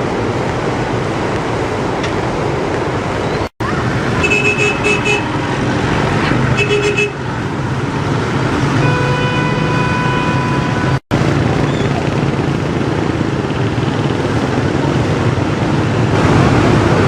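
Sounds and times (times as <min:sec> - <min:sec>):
loud rushing noise: 0:00.0 - 0:17.0
vehicle horn beeps: 0:04.2 - 0:05.3, 0:06.6 - 0:07.2, 0:08.8 - 0:11.0
steady horn-like tone: 0:08.8 - 0:11.0.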